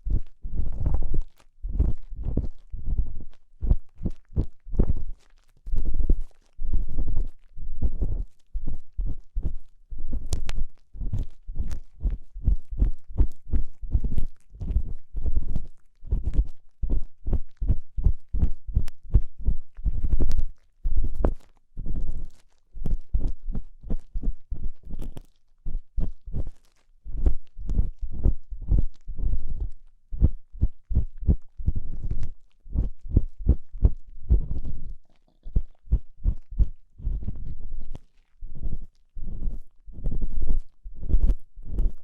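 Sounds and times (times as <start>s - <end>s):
tool scraping microphone: 34.3s - 42.0s.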